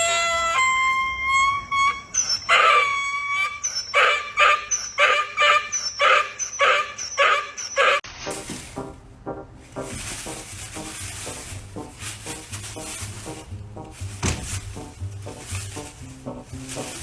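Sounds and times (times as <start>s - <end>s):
dog howling: 2.4s - 8.0s.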